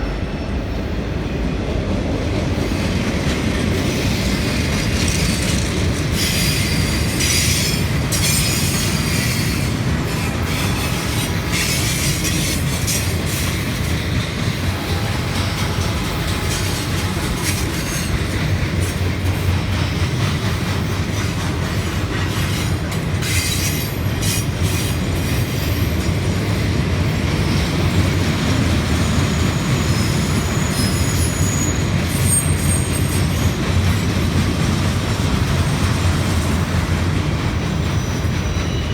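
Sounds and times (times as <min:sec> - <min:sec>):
train wheels clattering on rails: 0:00.0 - 0:38.9
high wheel squeal: 0:05.0 - 0:13.5, 0:14.8 - 0:18.4, 0:22.2 - 0:26.0, 0:29.0 - 0:33.6, 0:37.8 - 0:38.9.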